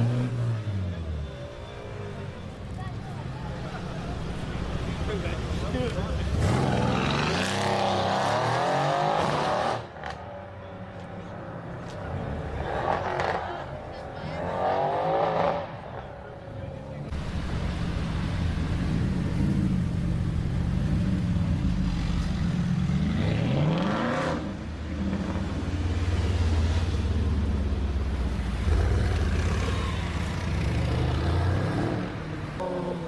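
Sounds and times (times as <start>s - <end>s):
car engine accelerating: 16.9s - 33.0s.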